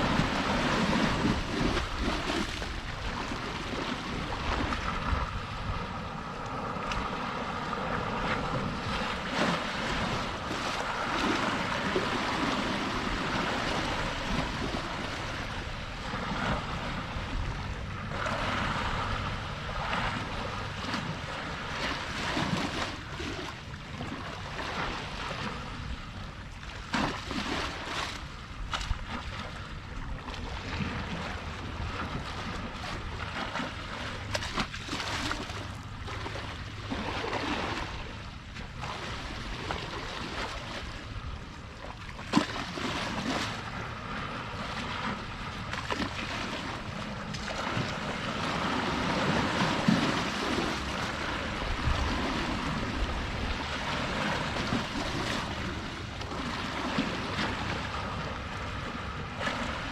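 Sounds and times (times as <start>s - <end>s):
wind on microphone: 0.0s - 26.4s, 43.0s - 59.9s
sea waves washing: 0.0s - 59.9s.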